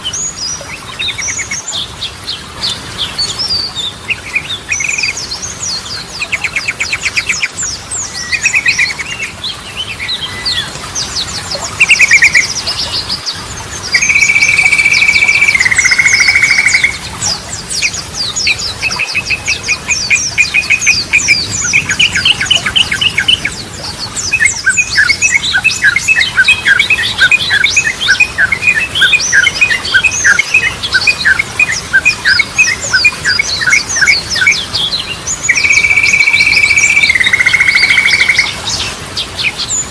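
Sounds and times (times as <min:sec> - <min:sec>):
bulbul singing trills: 0:02.6 - 0:39.9
higher bird chirps: 0:13.9 - 0:17.1, 0:24.3 - 0:38.6.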